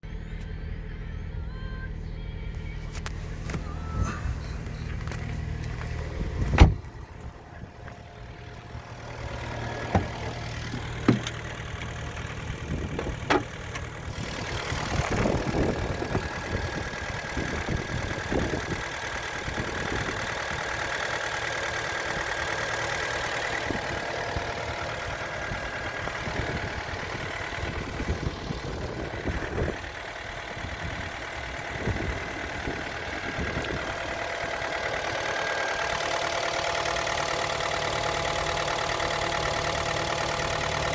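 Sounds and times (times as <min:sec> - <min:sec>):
car engine starting and idling: 0:00.0 - 0:40.9.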